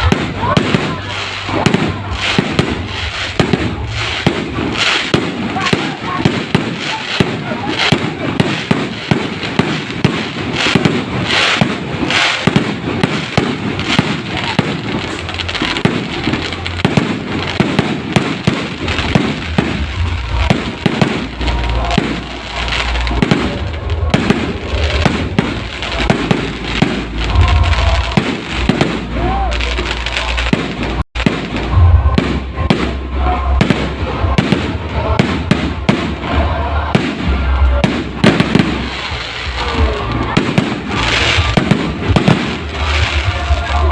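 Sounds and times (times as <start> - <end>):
fireworks bangs and crackles: 0.0 - 43.9
low rumble: 18.7 - 43.9.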